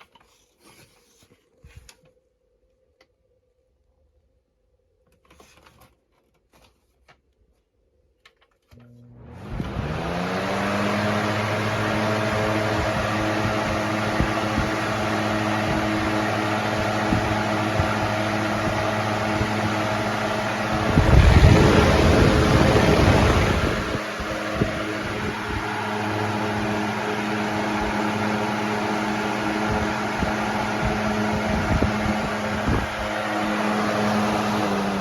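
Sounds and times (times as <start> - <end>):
box fan motor humming: 8.7 - 35.0
rough rumble of air: 18.6 - 26.3
rush of air: 20.2 - 25.9.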